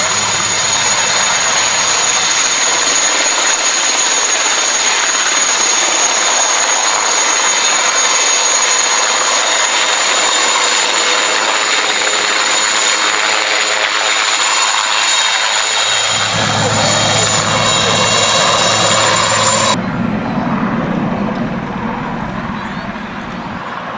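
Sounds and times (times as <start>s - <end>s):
helicopter turbine engines: 0.0s - 23.9s.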